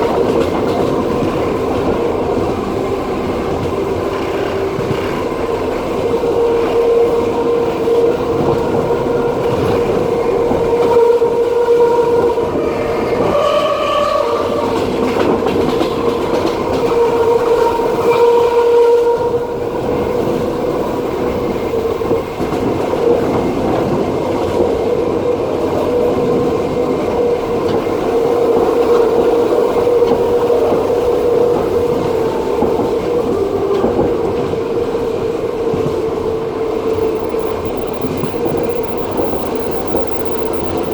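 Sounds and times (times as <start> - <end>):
train wheels rumbling on rails: 0.0 - 40.9
continuous humming tone: 36.9 - 40.9.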